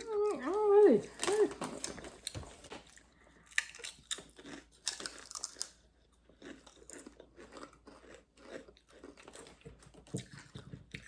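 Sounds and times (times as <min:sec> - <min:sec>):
crunchy chips being chewed: 0:00.0 - 0:11.0.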